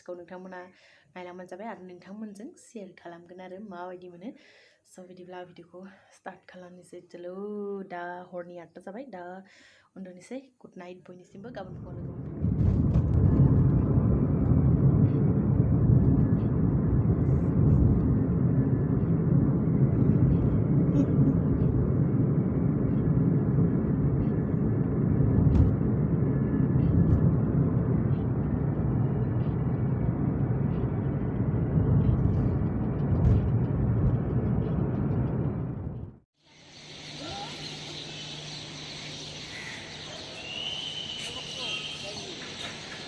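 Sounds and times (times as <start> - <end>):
vehicle rumble: 11.6 - 38.3.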